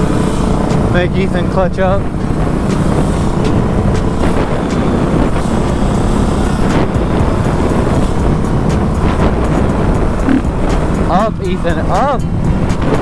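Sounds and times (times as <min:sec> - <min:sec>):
dirt bike engine running: 0:00.0 - 0:13.0
wind noise on microphone: 0:00.0 - 0:13.0.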